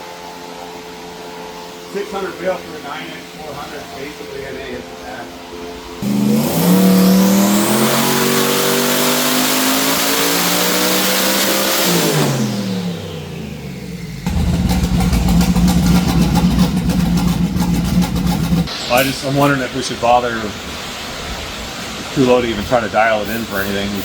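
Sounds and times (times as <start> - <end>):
engine revving on dyno: 6.0 - 19.2
engine idling loudly: 12.0 - 19.2.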